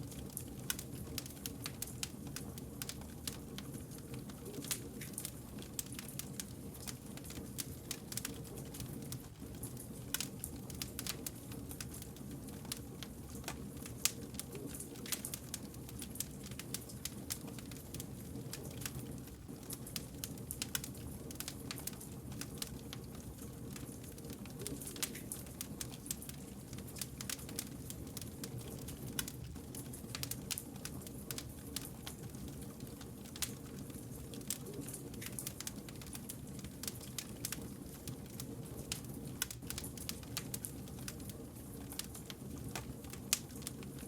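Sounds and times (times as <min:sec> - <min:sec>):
low rumble of burning logs: 0:00.0 - 0:44.0
wood fire crackling: 0:00.0 - 0:44.0.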